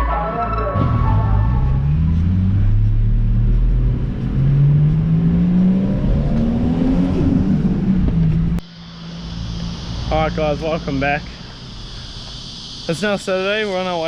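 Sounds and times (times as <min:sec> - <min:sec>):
car engine accelerating: 0:00.8 - 0:11.6.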